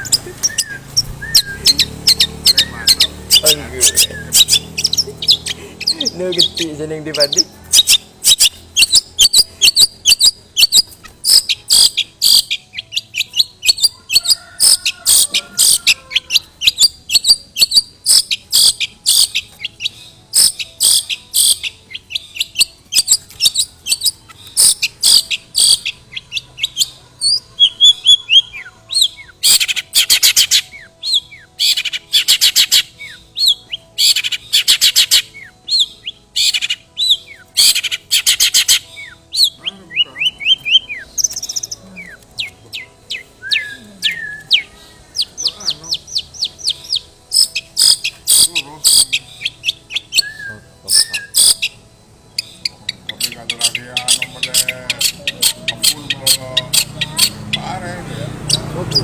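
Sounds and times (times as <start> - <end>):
shrike chattering song: 0.0 - 59.0.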